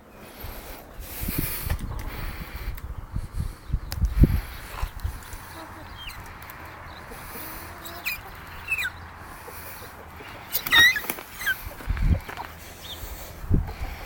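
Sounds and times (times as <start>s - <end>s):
hen squeaking: 4.8s - 13.2s.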